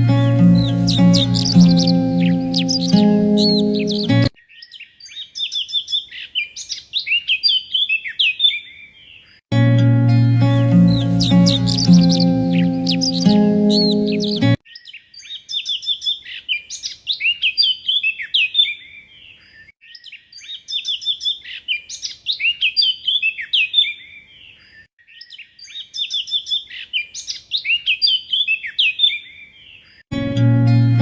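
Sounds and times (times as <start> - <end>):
background music: 0.0 - 4.3, 9.5 - 14.6, 30.1 - 31.0
songbird chirping and whistling: 0.0 - 8.8, 10.4 - 19.0, 19.8 - 24.2, 25.0 - 29.5.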